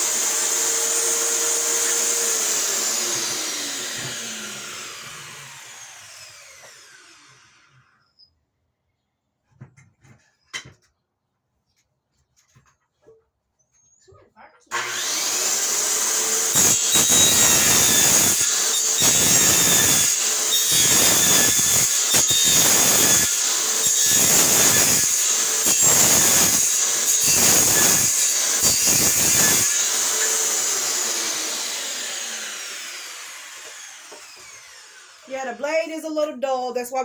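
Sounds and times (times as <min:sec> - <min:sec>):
electric saw cutting wood: 0:00.0 - 0:08.0, 0:14.7 - 0:35.9.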